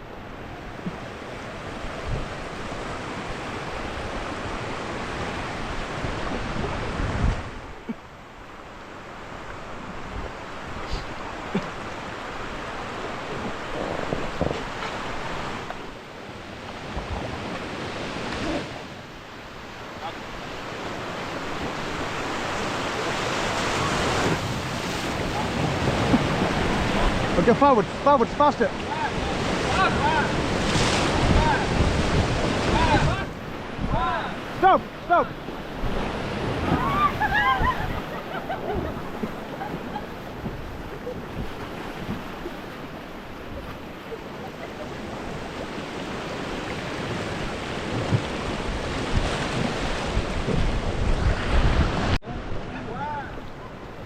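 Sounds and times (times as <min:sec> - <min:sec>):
rushing whitewater: 0:00.0 - 0:54.0
wind buffeting microphone: 0:05.7 - 0:07.8, 0:29.0 - 0:34.4, 0:35.3 - 0:52.9.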